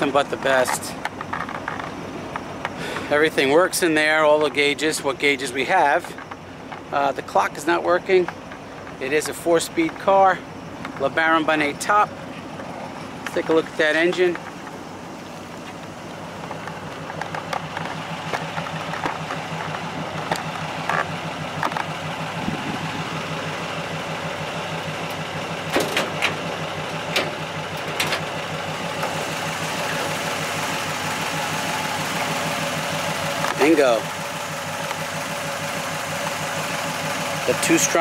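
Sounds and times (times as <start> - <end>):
car engine idling: 0.0 - 38.0
car hood clicks and knocks: 25.7 - 26.4.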